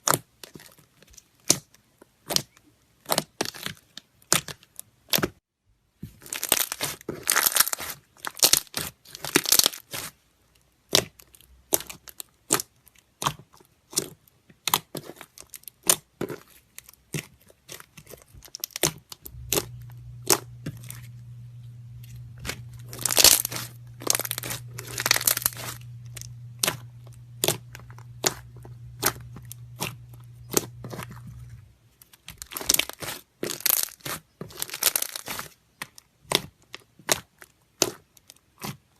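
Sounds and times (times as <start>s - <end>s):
slime crackling and popping: 6.2s - 10.1s, 17.1s - 31.7s, 32.3s - 35.5s
low hum: 19.2s - 31.9s.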